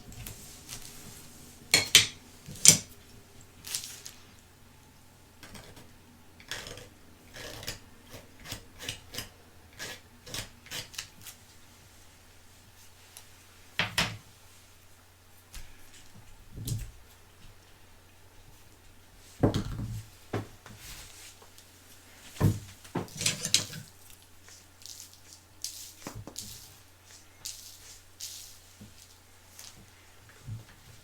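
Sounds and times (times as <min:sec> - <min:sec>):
small objects knocking and rustling: 0:22.3 - 0:31.0.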